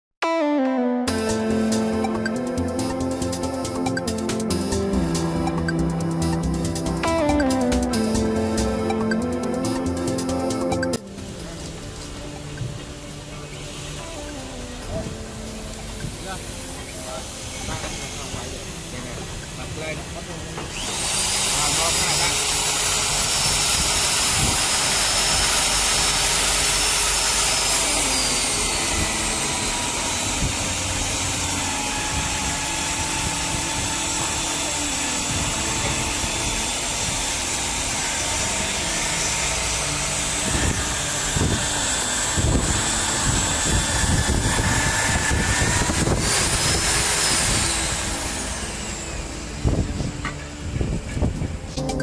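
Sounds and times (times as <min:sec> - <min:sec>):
drill motor high whine: 0:15.0 - 0:51.2.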